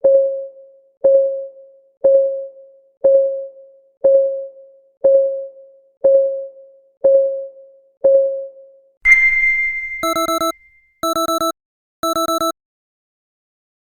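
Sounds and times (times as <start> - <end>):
bell-like ding: 9.1 - 10.8
electronic alarm beeps: 9.1 - 12.5
clock ticking: 10.0 - 12.5.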